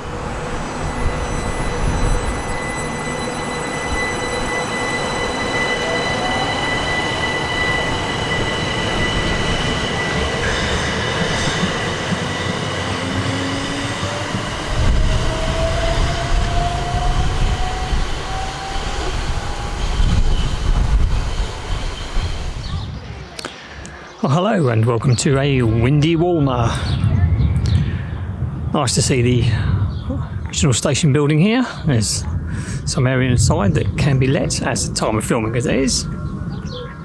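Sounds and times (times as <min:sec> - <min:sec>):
electric train motors whining: 0:00.0 - 0:23.0
low train rumble: 0:00.0 - 0:37.0.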